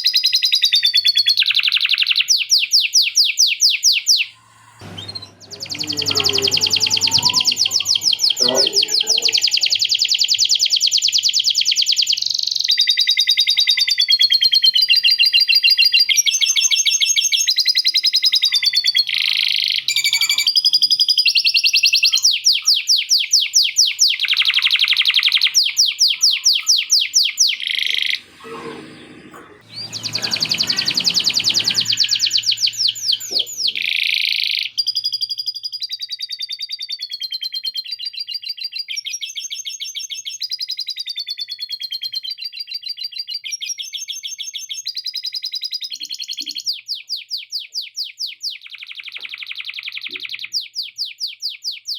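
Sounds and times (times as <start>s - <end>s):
canary singing trills: 0.0s - 28.3s, 29.6s - 36.0s.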